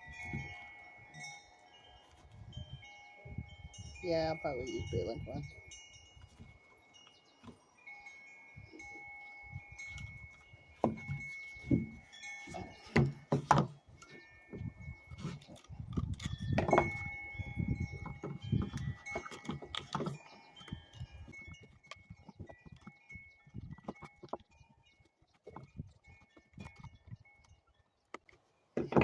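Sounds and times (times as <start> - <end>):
ringing metallic tones: 0.0 - 27.7
hands knocking and rustling wood: 10.3 - 17.2, 28.2 - 29.0.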